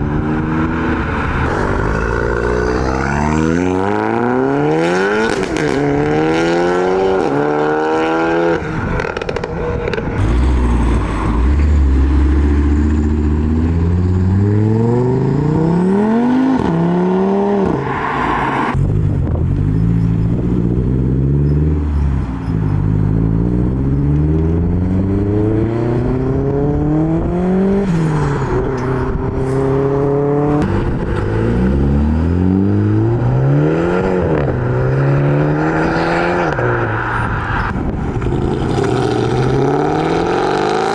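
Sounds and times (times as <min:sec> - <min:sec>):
car engines accelerating: 0:00.0 - 0:40.9.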